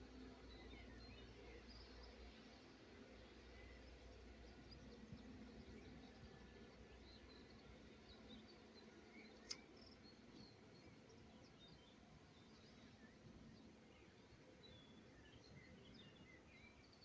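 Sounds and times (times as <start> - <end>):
faint bird chirps: 0.1 - 17.0
short click: 9.4 - 9.6.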